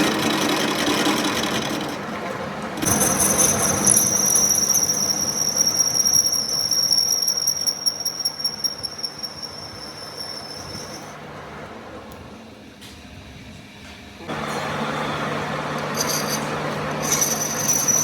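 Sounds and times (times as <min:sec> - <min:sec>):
metalworking machine running: 0:00.0 - 0:11.4, 0:14.3 - 0:18.0
high-pitched metallic squeal: 0:02.8 - 0:11.2, 0:15.9 - 0:18.0.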